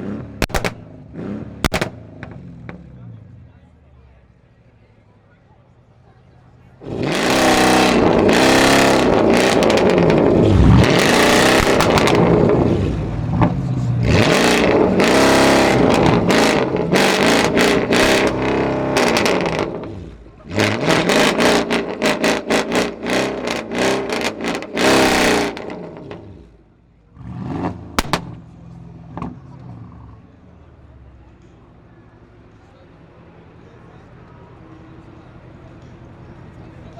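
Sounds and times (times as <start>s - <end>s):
car engine revving: 0.0s - 3.5s, 6.8s - 30.4s
exhaust pops: 0.4s - 1.0s, 1.6s - 2.9s, 7.5s - 20.0s, 27.9s - 28.5s.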